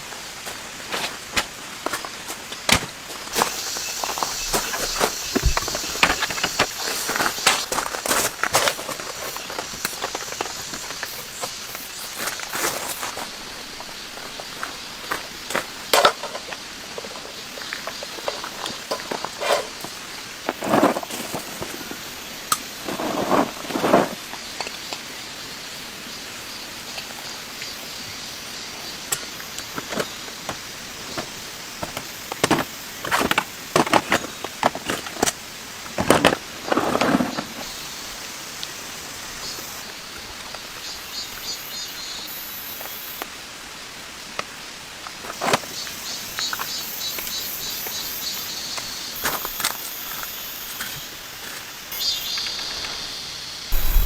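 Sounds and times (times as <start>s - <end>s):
rain hiss: 0.0s - 54.0s
gear being handled: 53.8s - 54.0s.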